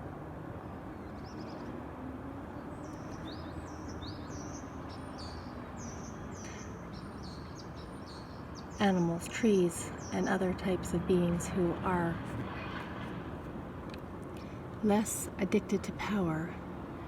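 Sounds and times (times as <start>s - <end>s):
small birds chirping: 0.6s - 1.8s, 2.6s - 12.9s.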